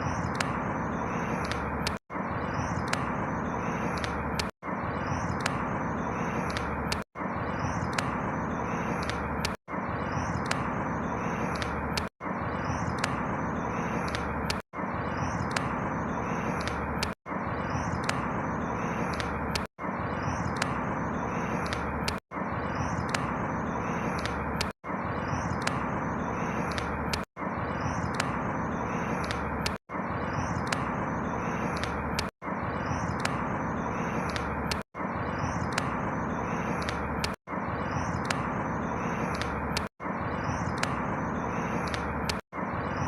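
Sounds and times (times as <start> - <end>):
small bird chirps: 0.0 - 43.0.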